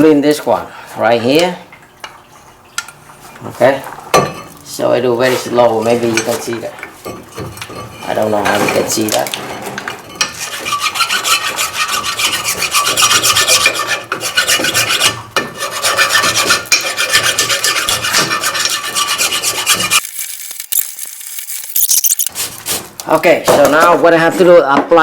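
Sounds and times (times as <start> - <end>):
hand file rasping on metal: 10.0 - 20.0.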